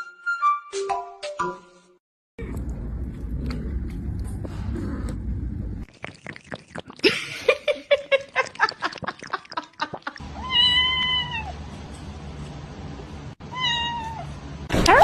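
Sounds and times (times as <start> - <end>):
cat meowing: 10.4 - 11.5, 13.5 - 14.3.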